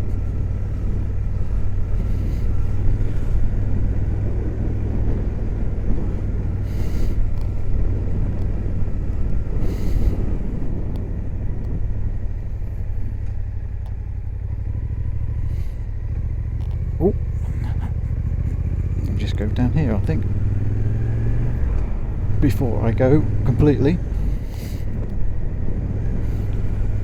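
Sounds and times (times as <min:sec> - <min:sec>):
motorcycle engine cruising: 0:00.0 - 0:27.0
wind rumble: 0:00.0 - 0:27.0.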